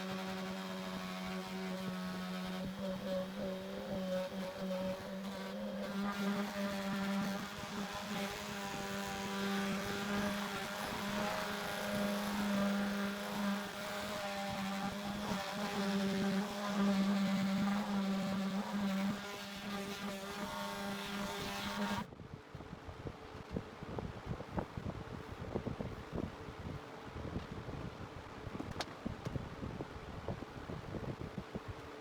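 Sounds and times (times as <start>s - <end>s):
power tool motor humming: 0.0s - 22.1s.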